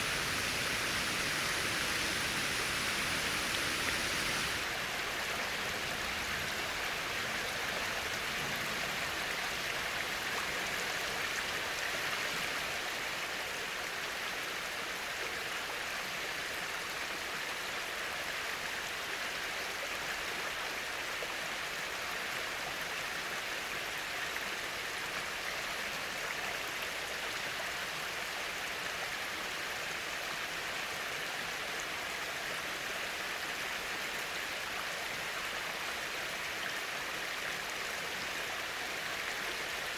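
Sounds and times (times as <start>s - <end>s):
waterfall splashing: 0.0s - 5.1s.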